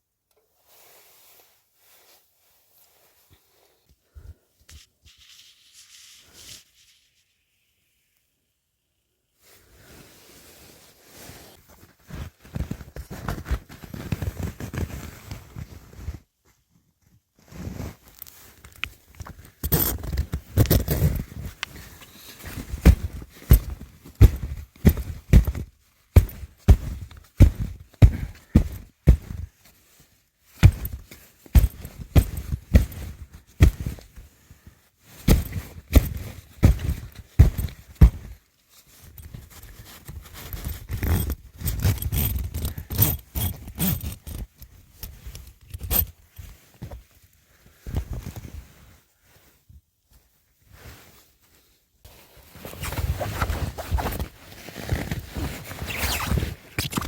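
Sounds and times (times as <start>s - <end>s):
scraping and rustling handling noises: 9.8s - 57.0s
footsteps crunching through snow: 21.8s - 29.5s.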